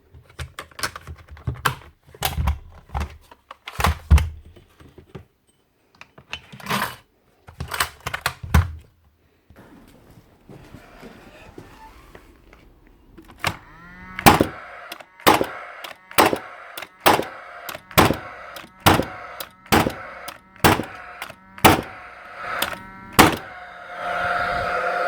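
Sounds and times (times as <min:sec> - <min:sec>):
fan whine: 0:12.2 - 0:25.0
nail gun shots: 0:13.4 - 0:23.6.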